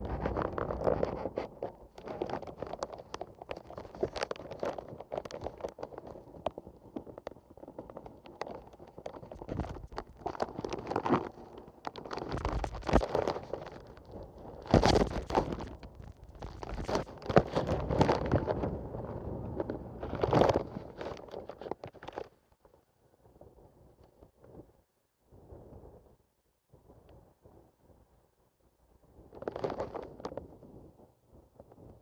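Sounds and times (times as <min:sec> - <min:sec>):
crackles and clicks: 0:00.0 - 0:18.7.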